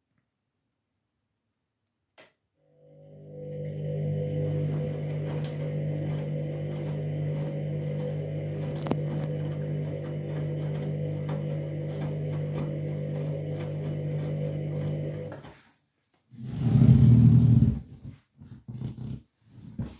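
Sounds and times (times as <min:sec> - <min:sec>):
washing machine humming: 0:02.7 - 0:15.5.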